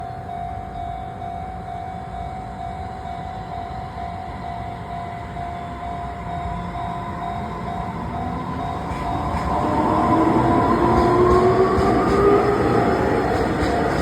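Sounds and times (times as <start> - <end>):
train wheels rumbling: 6.0 - 14.0.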